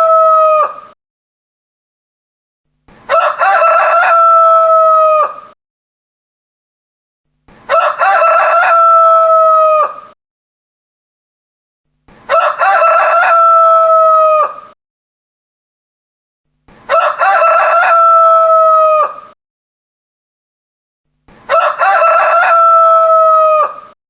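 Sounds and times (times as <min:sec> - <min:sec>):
rooster crowing: 0:00.0 - 0:00.9, 0:03.1 - 0:05.6, 0:07.7 - 0:10.2, 0:12.3 - 0:14.8, 0:16.9 - 0:19.4, 0:21.5 - 0:24.0.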